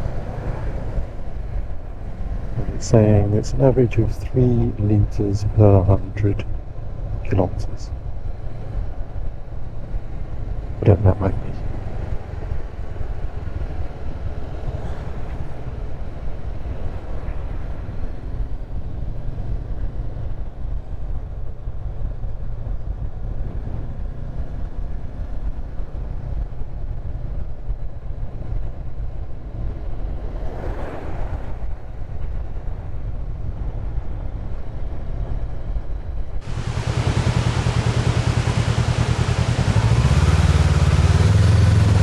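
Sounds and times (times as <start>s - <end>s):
motorcycle engine rumble: 0.0s - 27.7s, 36.4s - 42.0s
wind noise: 0.0s - 42.0s.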